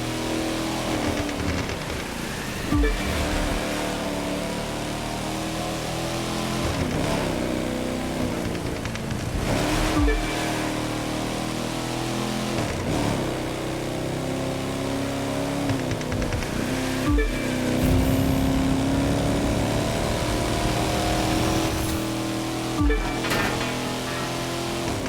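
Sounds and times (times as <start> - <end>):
car engine running: 0.0 - 25.0.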